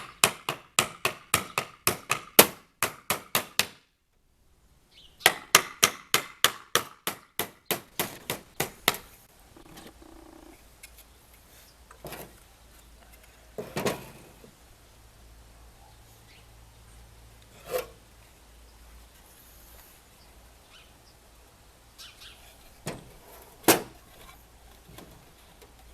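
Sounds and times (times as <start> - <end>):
hammer striking nail into wood: 0.0 - 3.9, 5.2 - 9.1.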